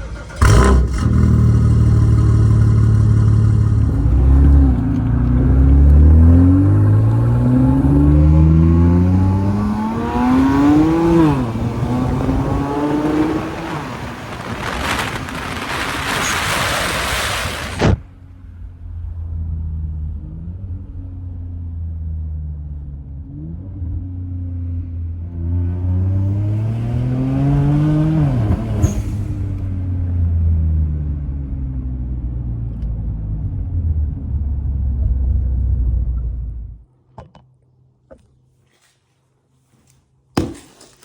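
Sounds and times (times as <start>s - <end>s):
exhaust crack: 0.0s - 8.7s, 9.4s - 20.1s
car engine idling and revving: 0.0s - 16.6s, 17.5s - 36.9s.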